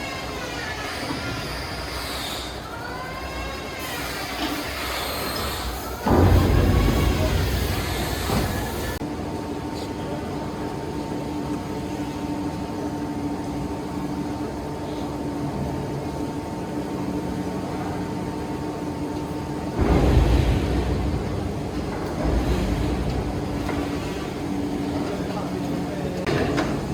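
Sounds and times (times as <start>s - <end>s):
workshop machinery humming: 0.0s - 26.9s
rough machine noise: 0.5s - 9.0s, 19.7s - 26.9s.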